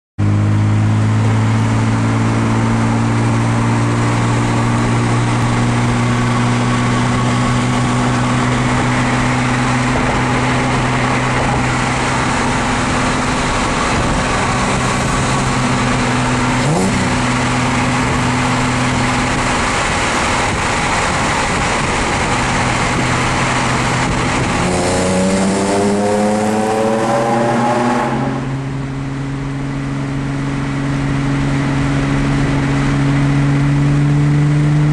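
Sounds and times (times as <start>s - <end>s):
car engine and exhaust: 0.2s - 34.9s
road noise: 0.2s - 34.9s.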